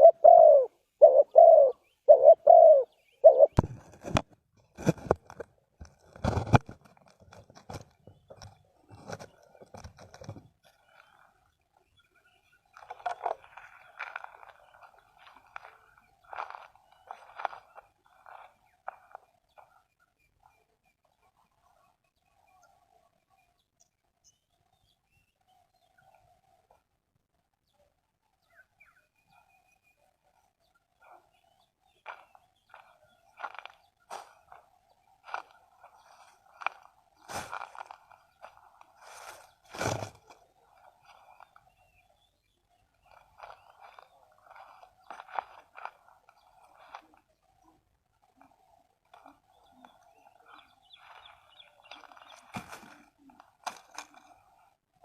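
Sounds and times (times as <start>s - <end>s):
dove cooing: 0.0s - 4.2s
small birds chirping: 0.0s - 4.2s, 5.9s - 55.0s
rustling: 32.8s - 41.7s.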